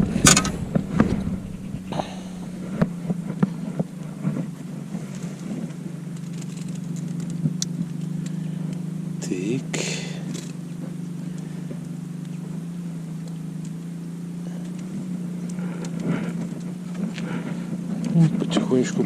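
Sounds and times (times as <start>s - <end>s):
handling knocks and clicks: 0.0s - 8.8s
motor humming: 0.0s - 19.0s.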